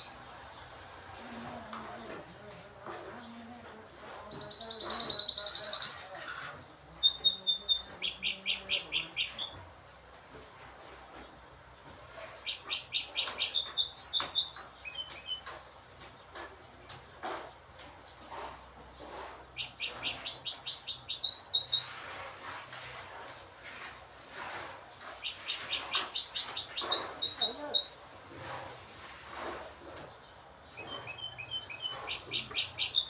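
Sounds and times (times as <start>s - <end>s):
songbirds singing: 0.0s - 9.7s, 10.3s - 22.2s, 24.8s - 28.0s, 29.6s - 33.0s.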